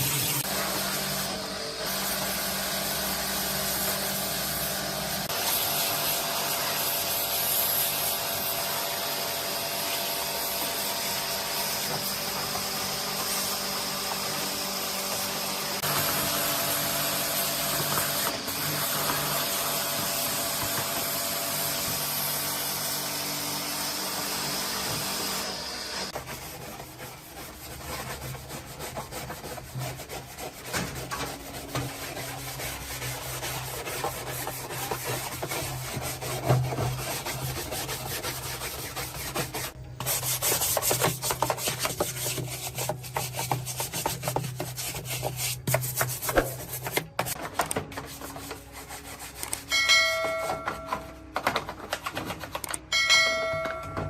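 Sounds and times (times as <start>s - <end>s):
irregular scraping and rubbing: 26.1s - 52.7s.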